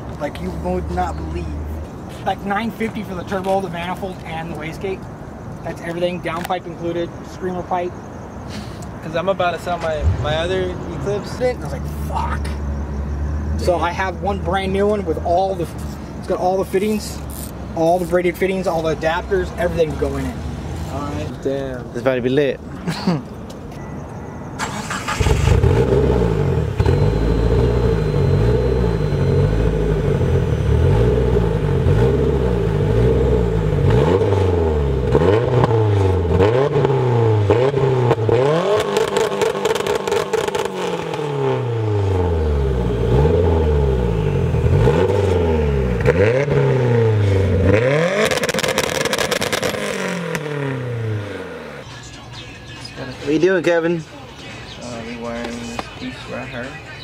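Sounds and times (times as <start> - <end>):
car engine revving on limiter: 24.6 - 51.8.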